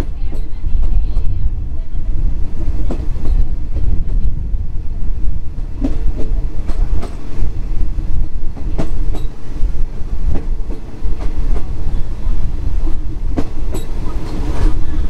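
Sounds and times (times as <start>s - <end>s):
train carriage rumble: 0.0s - 15.0s
wheels clacking over rail joints: 5.6s - 15.0s.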